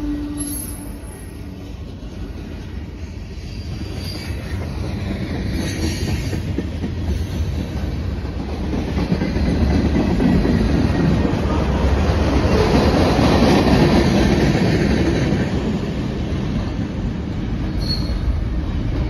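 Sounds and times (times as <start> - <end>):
high wheel squeal: 3.4 - 4.8, 17.7 - 18.4.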